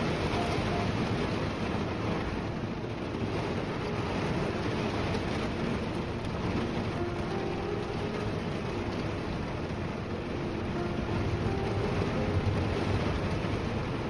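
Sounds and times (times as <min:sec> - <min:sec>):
rain on vehicle roof: 0:00.0 - 0:14.0.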